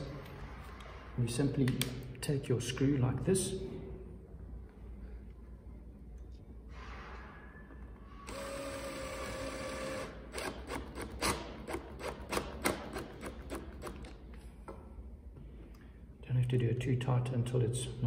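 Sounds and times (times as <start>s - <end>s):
cordless drill motor spinning: 8.3s - 11.3s.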